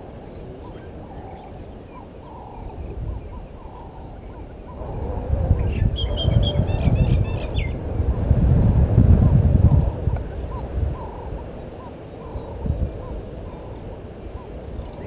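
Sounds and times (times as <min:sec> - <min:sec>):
bird harsh calls: 0:05.6 - 0:07.8.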